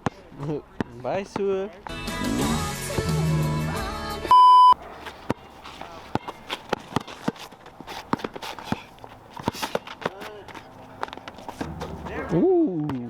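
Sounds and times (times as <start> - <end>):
background music with voice: 1.9 - 4.3
censor bleep: 4.3 - 4.8.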